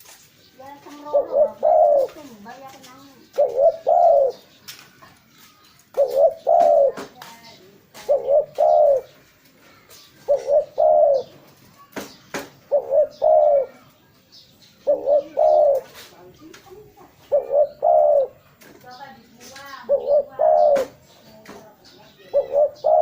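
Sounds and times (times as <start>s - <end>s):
dove cooing: 0.8s - 4.5s, 5.9s - 9.2s, 10.2s - 11.4s, 12.6s - 13.9s, 14.8s - 18.5s, 19.4s - 21.2s, 22.1s - 23.0s.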